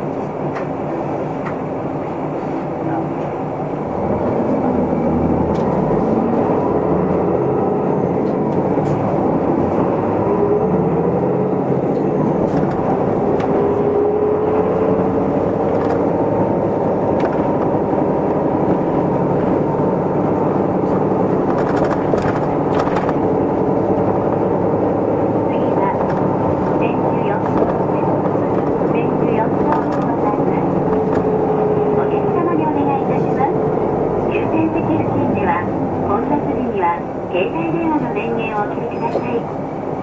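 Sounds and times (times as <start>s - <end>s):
bus engine running: 0.0s - 40.0s
interior rattles and ticks: 11.1s - 32.7s.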